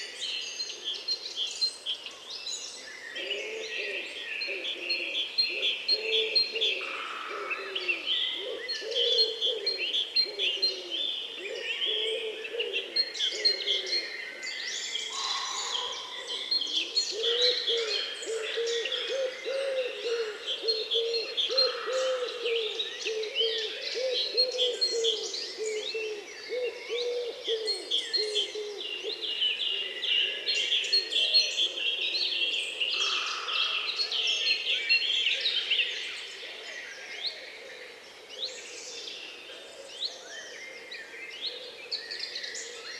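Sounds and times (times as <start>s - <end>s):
songbirds chirping and singing: 0.0s - 42.9s
low hooting or cooing call: 3.2s - 34.8s.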